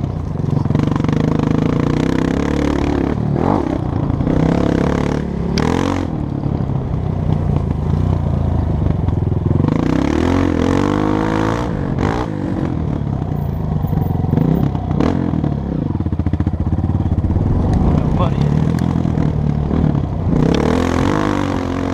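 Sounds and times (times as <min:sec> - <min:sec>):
dirt bike engine revving: 0:00.7 - 0:06.2, 0:09.6 - 0:13.1, 0:14.0 - 0:21.9.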